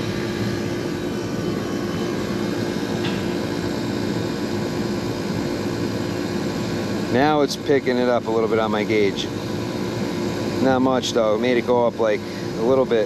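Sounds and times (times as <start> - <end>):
air conditioning unit humming: 0.0 - 13.0.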